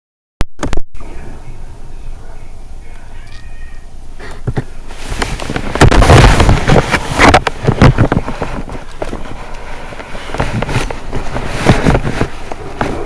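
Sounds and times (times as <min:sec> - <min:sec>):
thunder cracking and rumbling: 0:05.2 - 0:09.5.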